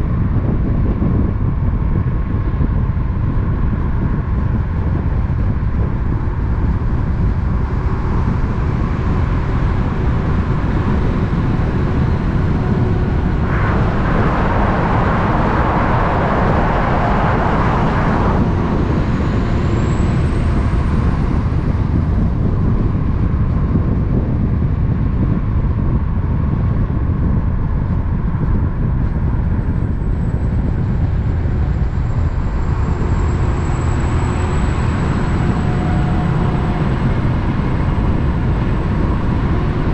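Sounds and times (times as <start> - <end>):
truck engine rumble: 0.0 - 39.9
thin high whine: 6.3 - 23.2, 29.1 - 39.9.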